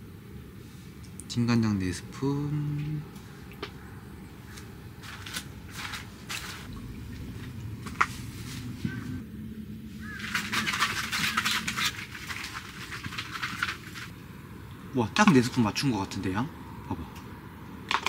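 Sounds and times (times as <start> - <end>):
steady low hum: 0.0 - 17.9
spoon scraping: 10.0 - 14.1.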